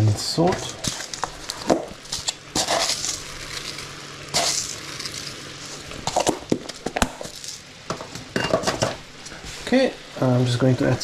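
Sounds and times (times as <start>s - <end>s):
utensil scraping a pot: 0.6s - 7.6s.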